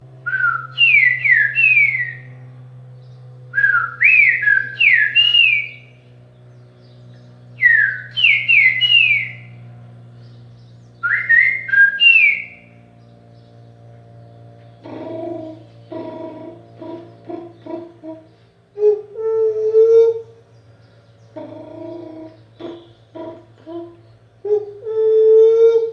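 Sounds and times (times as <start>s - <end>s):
steady low hum: 0.0s - 25.9s
man whistling birdsong: 0.3s - 2.4s, 3.5s - 6.0s, 7.5s - 9.6s, 11.0s - 12.8s.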